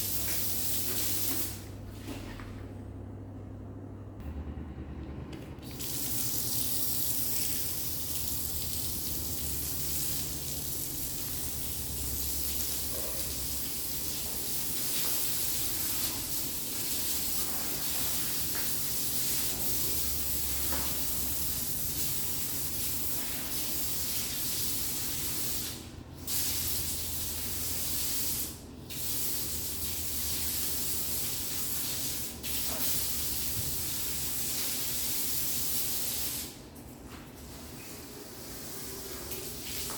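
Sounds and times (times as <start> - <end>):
water spraying hiss: 5.7 - 36.5.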